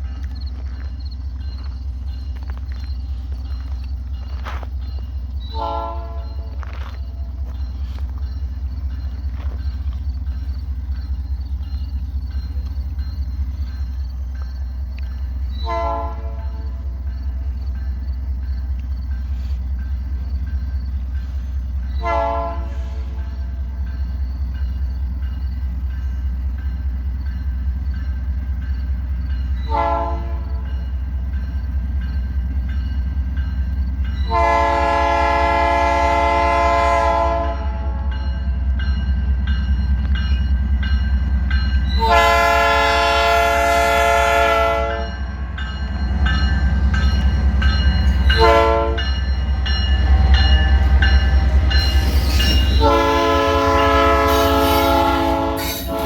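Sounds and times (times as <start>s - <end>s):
diesel locomotive rumble: 0.0s - 56.0s
locomotive air horn blasts: 5.5s - 6.5s, 15.6s - 16.8s, 22.0s - 23.2s, 29.7s - 30.5s, 34.3s - 38.1s, 42.0s - 45.2s, 48.3s - 49.1s, 52.0s - 56.0s.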